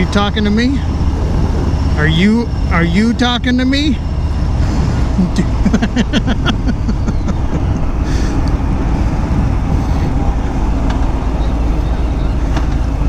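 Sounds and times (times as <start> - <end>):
motorcycle engine rumble: 0.0 - 13.0
wind rushing: 0.8 - 2.8, 6.0 - 12.5.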